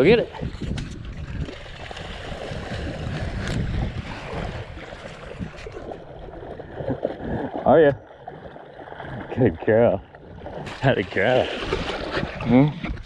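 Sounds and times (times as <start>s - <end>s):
wind buffeting microphone: 0.0s - 7.5s
water splashing and lapping: 0.0s - 13.0s.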